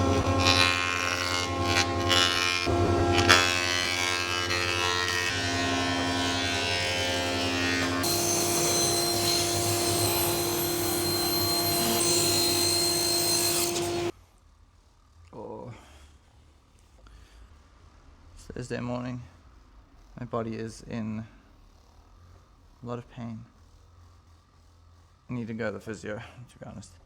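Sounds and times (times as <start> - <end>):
power tool motors whining: 0.0 - 14.1.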